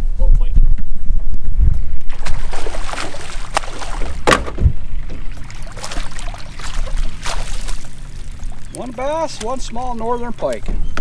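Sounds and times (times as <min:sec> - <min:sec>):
water splashes: 0:02.1 - 0:10.6
knocks in a canoe: 0:03.5 - 0:05.2.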